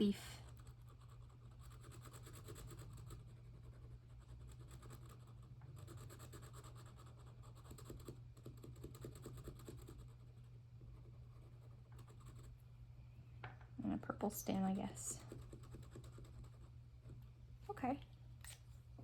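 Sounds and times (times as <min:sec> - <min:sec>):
steady low hum: 0:00.0 - 0:19.0
drawing tool scratching on paper: 0:00.4 - 0:12.5, 0:15.2 - 0:17.2.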